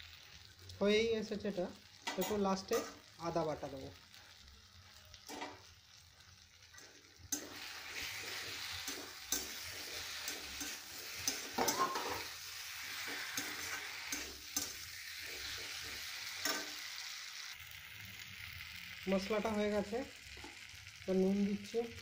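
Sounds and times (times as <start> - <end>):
food sizzling in oil: 0.0 - 22.0
metal spatula scraping pan: 7.3 - 16.9.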